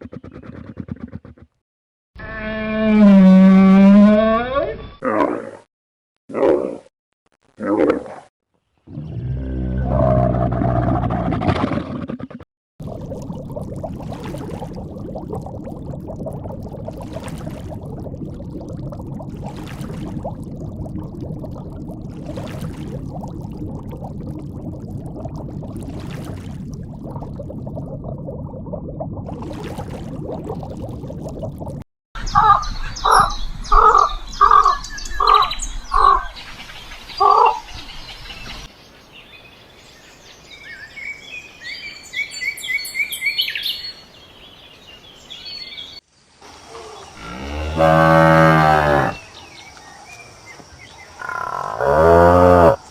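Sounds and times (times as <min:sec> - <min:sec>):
low animal rumbling: 0:08.9 - 0:12.4.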